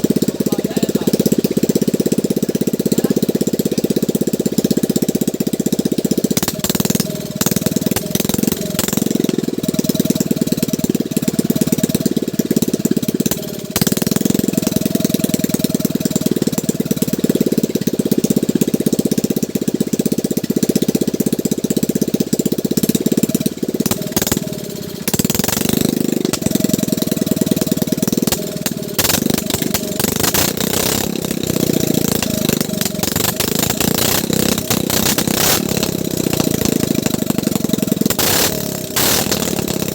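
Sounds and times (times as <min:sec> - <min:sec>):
boat engine chugging: 0:00.0 - 0:39.9.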